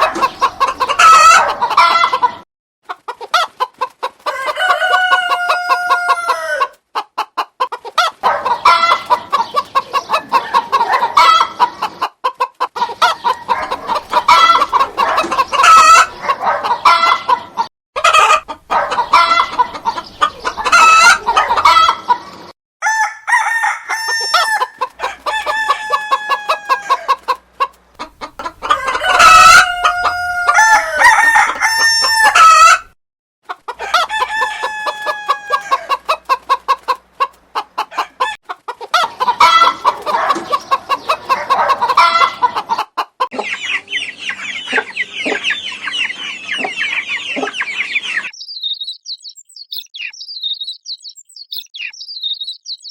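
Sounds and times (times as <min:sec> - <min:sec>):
roosters crowing: 0:00.0 - 0:02.3, 0:04.2 - 0:06.8, 0:08.1 - 0:11.6, 0:13.0 - 0:22.2, 0:22.8 - 0:27.4, 0:28.0 - 0:33.0, 0:33.7 - 0:36.4, 0:37.9 - 0:48.3
chickens clucking: 0:00.0 - 0:22.5, 0:23.6 - 0:50.8
high bird chirping: 0:43.3 - 0:52.9.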